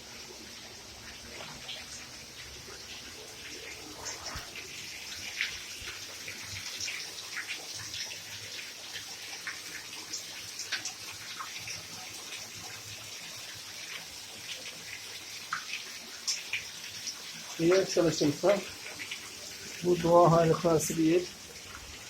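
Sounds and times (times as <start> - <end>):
water running and splashing: 0.0 - 22.0.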